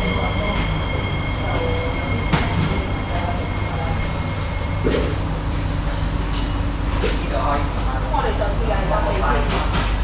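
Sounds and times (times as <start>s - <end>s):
high steady whine: 0.0s - 7.7s
train equipment low hum: 0.0s - 10.0s.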